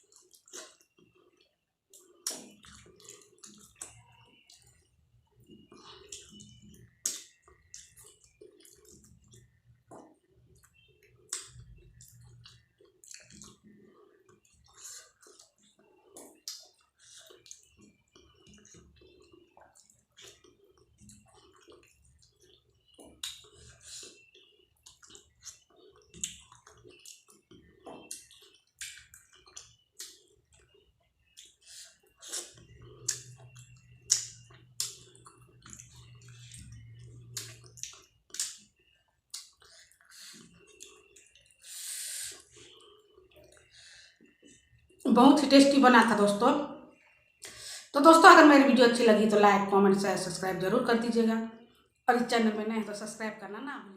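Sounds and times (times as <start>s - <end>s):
person chewing with mouth smacks: 0.0s - 45.0s.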